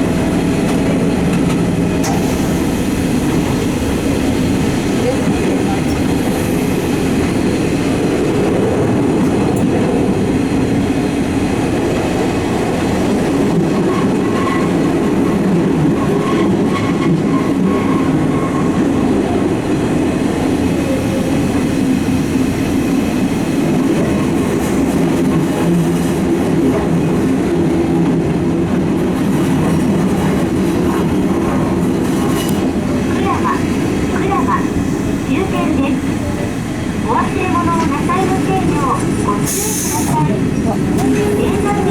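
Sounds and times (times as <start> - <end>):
train wheels rumbling on rails: 0.0 - 41.9.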